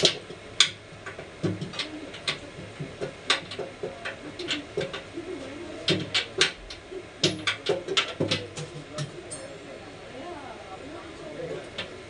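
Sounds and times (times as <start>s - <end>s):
low wavering cooing: 1.6s - 8.0s.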